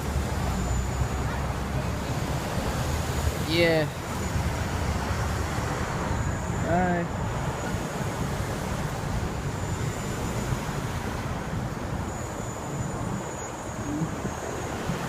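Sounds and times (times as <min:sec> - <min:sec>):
street traffic rumble: 0:00.0 - 0:15.0
wind on microphone: 0:04.0 - 0:15.0.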